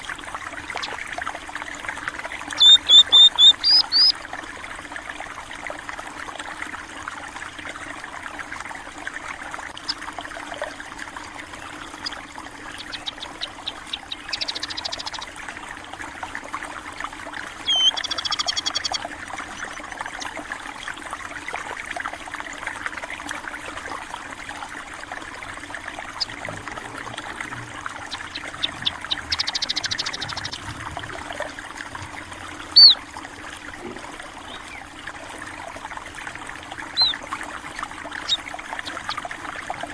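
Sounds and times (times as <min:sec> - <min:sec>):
small stream trickling: 0:00.0 - 0:39.9
small birds chirping: 0:02.5 - 0:04.1, 0:11.9 - 0:15.4, 0:17.6 - 0:19.0, 0:26.1 - 0:33.0, 0:36.9 - 0:37.3, 0:38.2 - 0:39.2.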